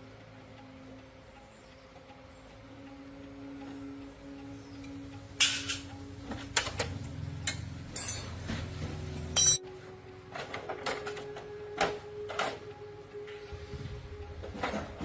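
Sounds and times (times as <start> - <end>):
metal tools clinking: 7.5 - 8.6, 9.3 - 9.6
loud ringing metal clink: 7.9 - 8.4, 9.4 - 9.6.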